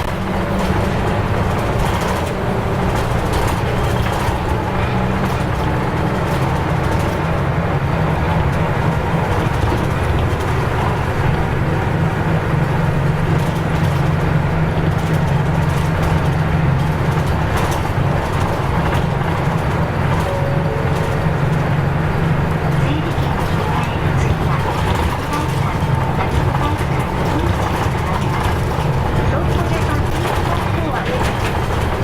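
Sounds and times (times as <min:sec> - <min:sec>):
bus diesel engine running: 0:00.0 - 0:32.0
road and body noise: 0:00.0 - 0:32.0.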